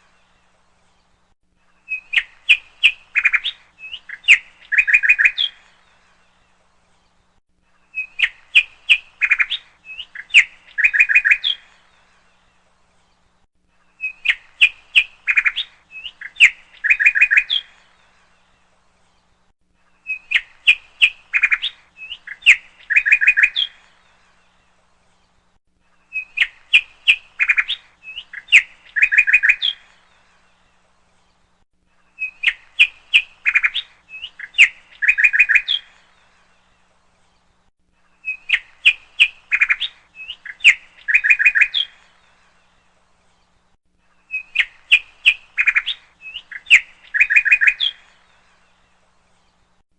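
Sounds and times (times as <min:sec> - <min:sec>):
bird chirping and trilling: 0:01.8 - 0:06.0, 0:07.9 - 0:12.0, 0:13.9 - 0:18.3, 0:20.0 - 0:24.3, 0:26.0 - 0:30.4, 0:32.1 - 0:36.7, 0:38.0 - 0:42.7, 0:44.2 - 0:49.6.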